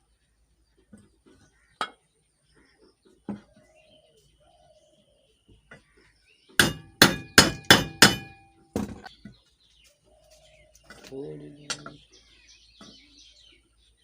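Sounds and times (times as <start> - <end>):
hammer striking metal: 6.6 - 8.5.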